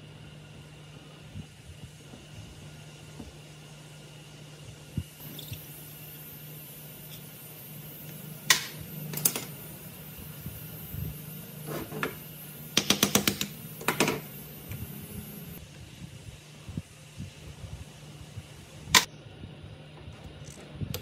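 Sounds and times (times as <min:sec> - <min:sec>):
steady low hum: 0:00.0 - 0:21.0
sharp knocks and clicks: 0:12.8 - 0:14.2.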